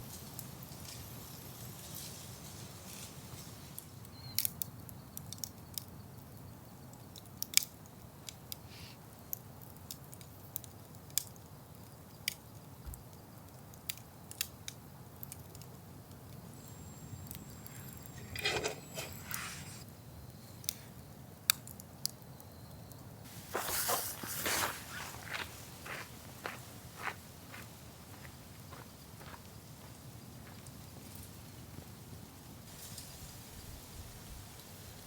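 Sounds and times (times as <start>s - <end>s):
campfire crackling and popping: 0.0s - 27.1s
rustling: 16.5s - 19.8s, 23.3s - 26.6s.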